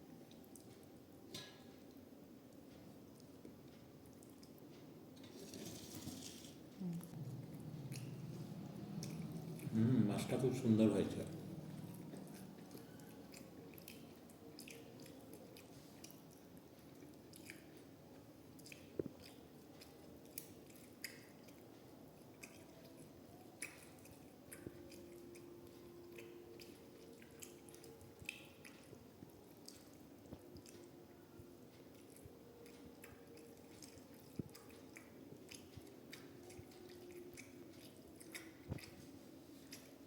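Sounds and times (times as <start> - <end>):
chewing: 0.2 - 2.0, 2.6 - 40.0
wet clicks and lip smacks: 11.2 - 17.9, 18.6 - 21.6, 26.1 - 30.9, 31.9 - 39.1.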